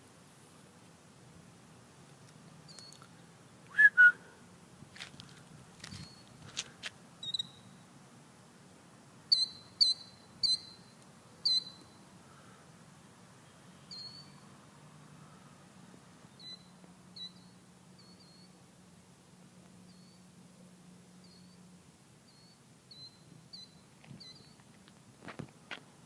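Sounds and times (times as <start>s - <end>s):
high whistled bird chirps: 7.2s - 7.8s, 9.3s - 12.0s, 13.8s - 14.4s, 16.3s - 18.6s, 19.9s - 20.2s, 21.2s - 21.6s, 22.3s - 24.6s.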